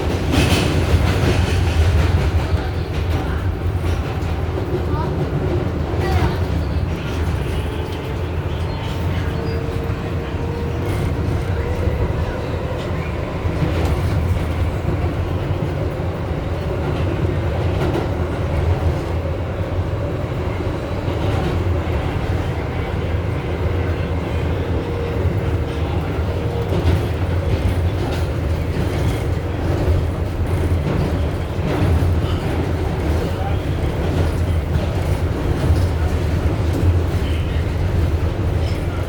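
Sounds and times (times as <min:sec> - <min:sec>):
subway train wheels rumbling: 0:00.0 - 0:39.0.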